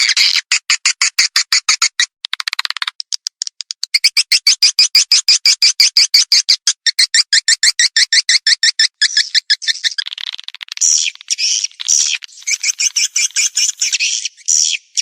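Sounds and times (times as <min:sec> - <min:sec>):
fast sharp bird chirps: 0:03.7 - 0:15.0.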